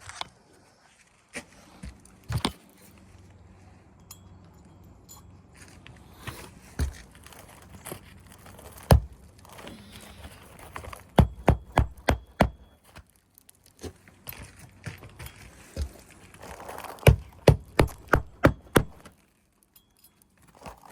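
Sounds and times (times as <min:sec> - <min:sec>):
hammer knocking nails: 0:11.2 - 0:12.7, 0:17.0 - 0:19.1.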